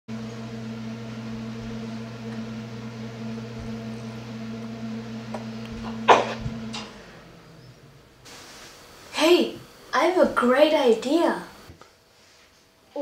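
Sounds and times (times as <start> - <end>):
appliance humming: 0.1 - 12.0
loud puff of noise: 8.2 - 9.2.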